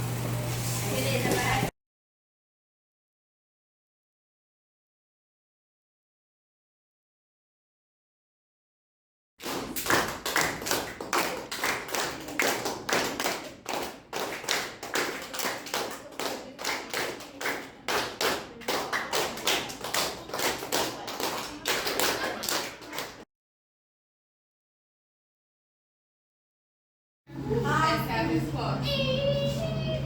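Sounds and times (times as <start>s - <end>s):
sharp taps and claps: 9.4s - 23.2s.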